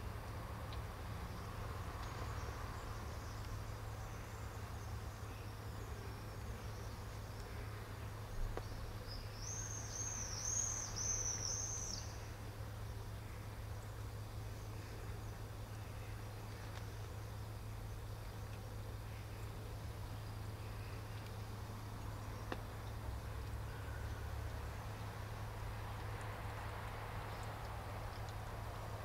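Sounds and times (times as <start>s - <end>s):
low background hum: 0.0s - 29.0s
small bird chirping: 1.2s - 22.6s.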